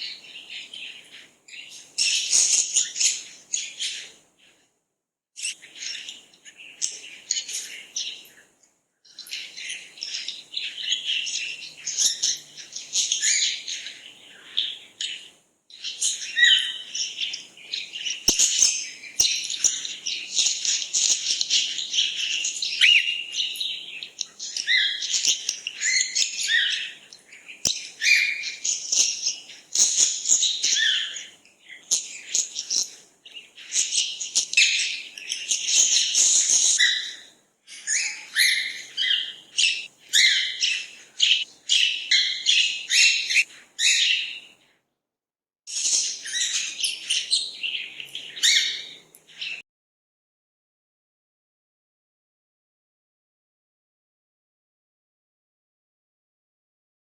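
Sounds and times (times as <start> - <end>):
small birds chirping: 0.0 - 4.6, 5.4 - 44.7, 45.7 - 49.6.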